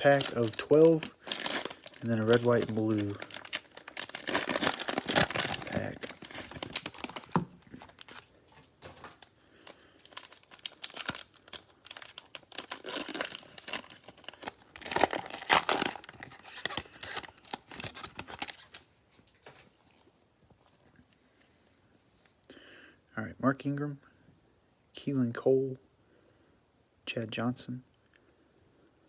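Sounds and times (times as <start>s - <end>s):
cellophane wrapper crinkling and tearing: 0.0s - 19.4s.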